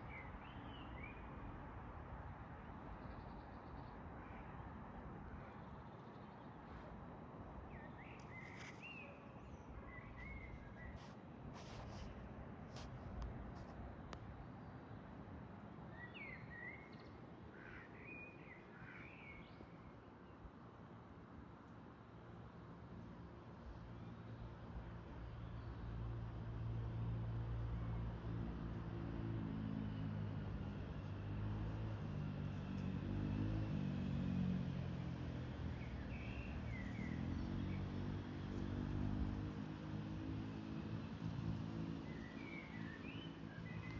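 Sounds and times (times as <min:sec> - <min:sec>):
distant vehicle engine hum: 0:23.7 - 0:43.9.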